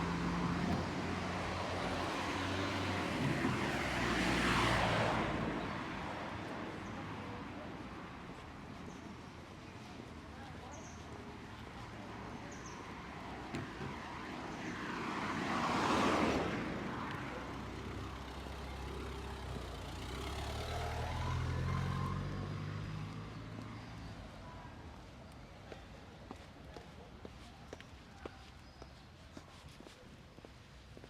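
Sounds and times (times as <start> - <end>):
car passing: 0.0 - 7.4, 13.2 - 24.6.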